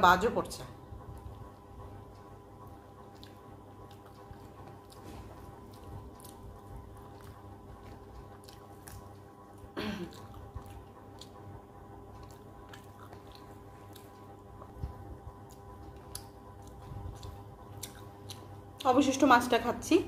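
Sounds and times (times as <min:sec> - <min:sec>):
faint steady hum: 0:00.0 - 0:20.0
soft chewing: 0:00.8 - 0:19.5
wet mouth clicks and smacks: 0:03.0 - 0:18.9.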